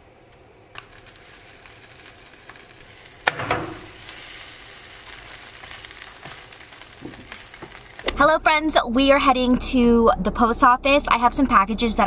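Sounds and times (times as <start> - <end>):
food sizzling and crackling: 0.6 - 8.4.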